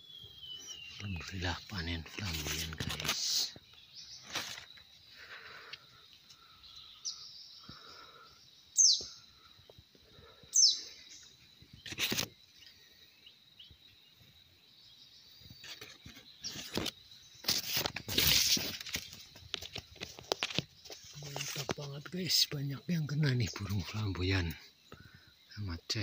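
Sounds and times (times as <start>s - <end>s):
rustling and handling noise: 1.7s - 3.6s, 4.2s - 4.9s, 15.6s - 22.0s
sharp downward bird calls: 8.8s - 9.3s.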